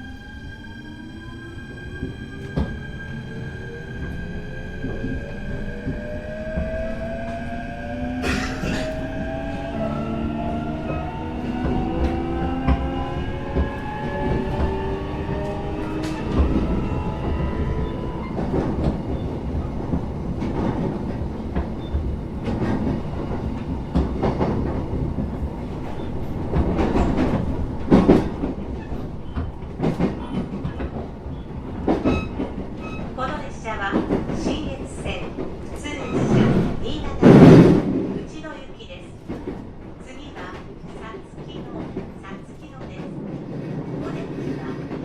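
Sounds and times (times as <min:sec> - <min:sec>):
low train rumble: 0:00.0 - 0:45.0.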